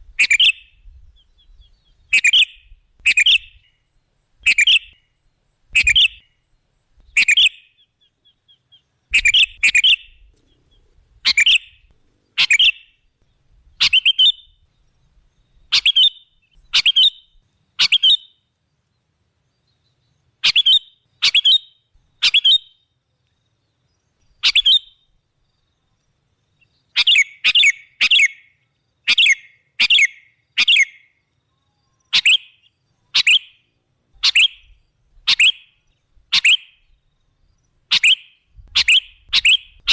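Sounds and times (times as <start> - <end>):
bird sharp chirping calls: 0.0 - 3.8, 4.4 - 5.1, 5.7 - 6.4, 7.0 - 13.1, 13.7 - 14.7, 15.5 - 18.4, 20.4 - 22.8, 24.3 - 25.0, 26.6 - 31.2, 32.0 - 37.0, 37.6 - 39.9.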